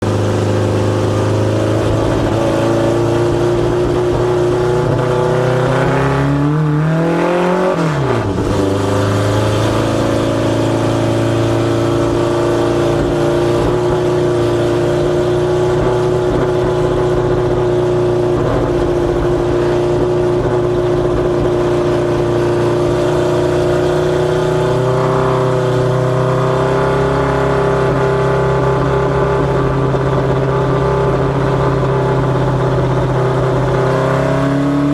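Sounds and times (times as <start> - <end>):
race car engine at high revs: 0.0 - 34.9.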